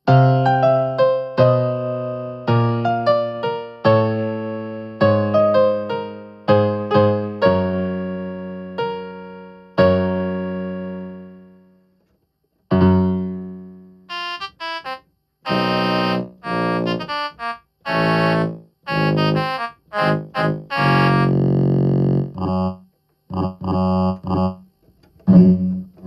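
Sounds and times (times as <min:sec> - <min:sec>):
piano-like keyboard notes: 0:00.0 - 0:11.8, 0:12.7 - 0:24.6, 0:25.2 - 0:26.0
sustained keyboard tone: 0:14.1 - 0:26.0.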